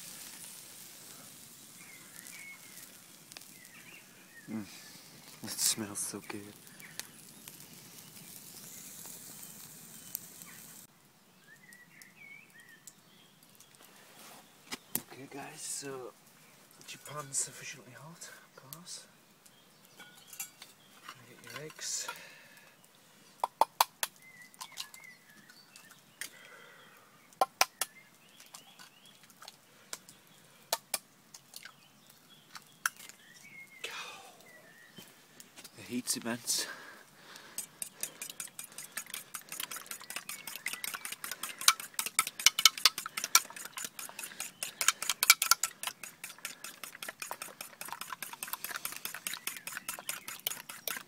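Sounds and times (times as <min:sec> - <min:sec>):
sausage sizzling over campfire: 0:00.0 - 0:51.0
sharp clicks and taps: 0:23.4 - 0:24.7, 0:27.4 - 0:27.9, 0:37.4 - 0:51.0
sharp pops: 0:23.4 - 0:24.9, 0:27.4 - 0:28.0, 0:30.7 - 0:31.1, 0:37.3 - 0:51.0.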